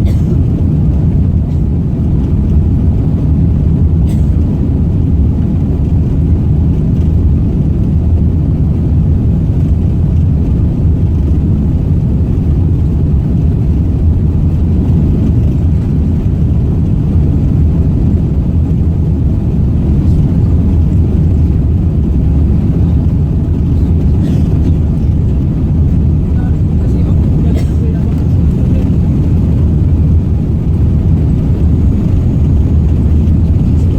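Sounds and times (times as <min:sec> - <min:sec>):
airplane cabin engine roar: 0:00.0 - 0:33.9.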